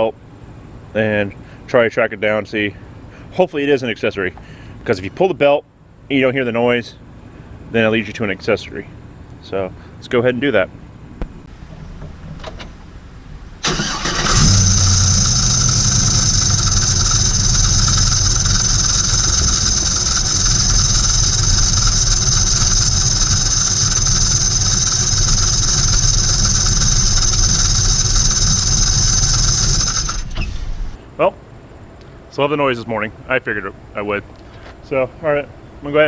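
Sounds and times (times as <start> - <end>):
car engine starting and idling: 11.5 - 31.0
high-pitched grinding whine: 13.6 - 31.0.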